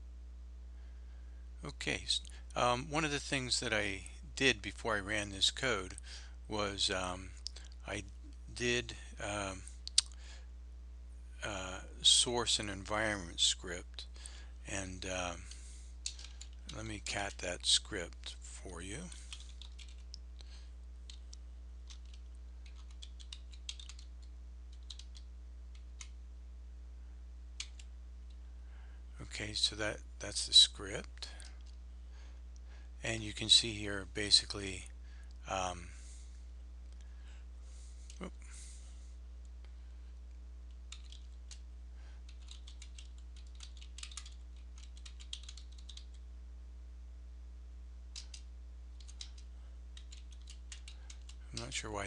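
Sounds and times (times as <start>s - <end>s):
steady low hum: 0.0s - 52.0s
keyboard typing: 16.0s - 16.8s, 19.1s - 20.2s, 21.1s - 26.2s, 27.6s - 27.9s, 40.9s - 41.6s, 42.3s - 46.2s, 48.1s - 51.7s.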